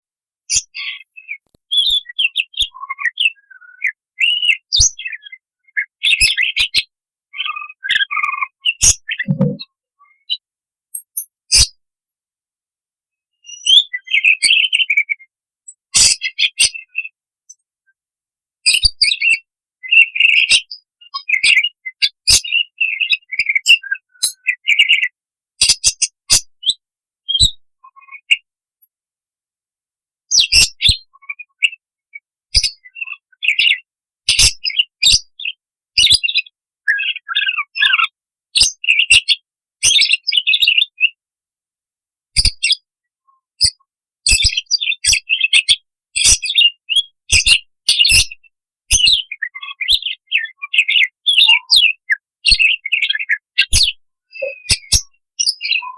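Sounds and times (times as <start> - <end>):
budgerigar chirping and warbling: 7.4 - 9.6.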